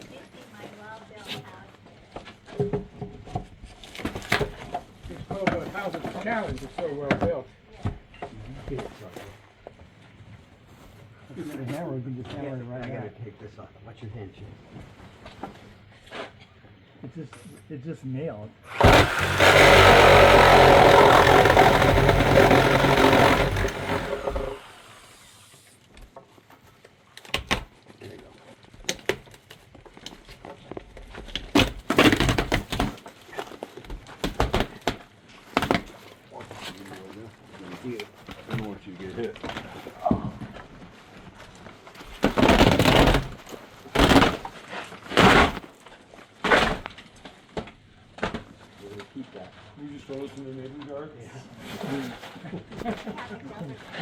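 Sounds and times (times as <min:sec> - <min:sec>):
reciprocating saw cutting boards: 0:18.6 - 0:25.8, 0:42.2 - 0:45.7
timber impacts: 0:18.7 - 0:25.3, 0:42.0 - 0:45.7
timber crashing clatter: 0:18.7 - 0:25.5, 0:31.3 - 0:38.7, 0:39.4 - 0:48.6.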